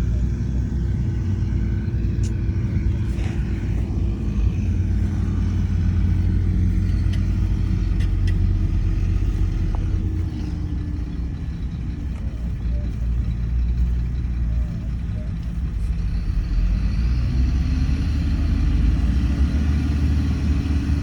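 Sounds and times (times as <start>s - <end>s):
heavy diesel engine under load: 0.0s - 21.0s
sharp clicks: 2.1s - 2.7s, 6.6s - 10.0s.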